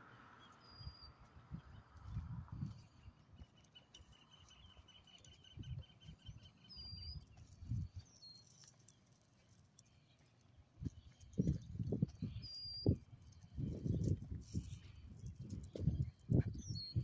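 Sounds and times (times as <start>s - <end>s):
high bird chirps: 0.4s - 1.8s, 12.2s - 14.0s.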